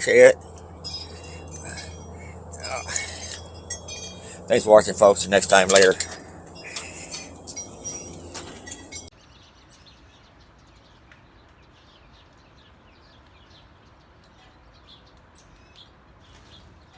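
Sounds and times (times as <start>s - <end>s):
metallic jingling and clinking: 0.0s - 9.1s
small birds chirping: 0.0s - 16.9s.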